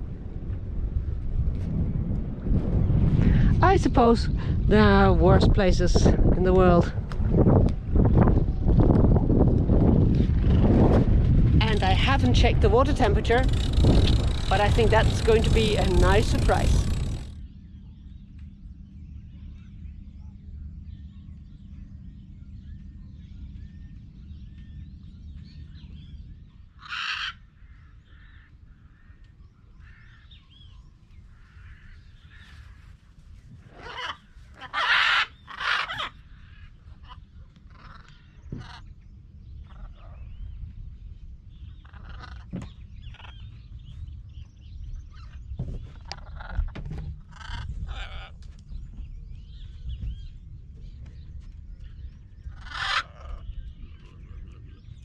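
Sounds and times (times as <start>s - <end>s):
low steady rumble: 0.0s - 55.0s
harsh animal squawks: 26.8s - 27.4s, 33.8s - 36.2s, 52.5s - 53.4s.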